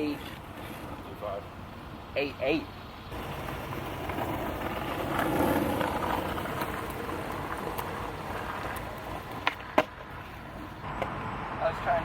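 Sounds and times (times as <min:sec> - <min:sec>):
skateboard wheels rolling on pavement: 0:00.0 - 0:12.0
skateboard clack: 0:03.1 - 0:10.3.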